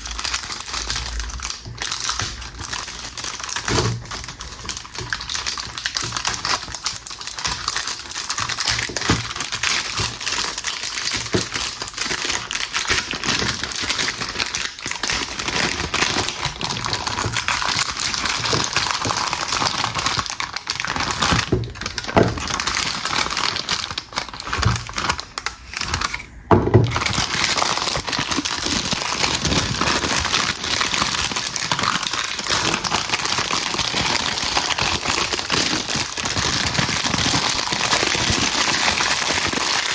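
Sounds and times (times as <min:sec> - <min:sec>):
wrapper crinkling: 0:00.0 - 0:39.9
wrapper tearing: 0:00.0 - 0:39.9.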